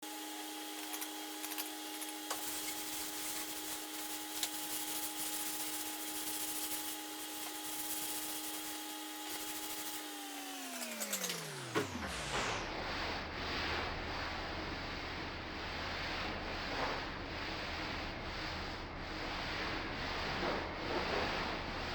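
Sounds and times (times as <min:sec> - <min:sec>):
electric motor humming: 0:06.0 - 0:12.7.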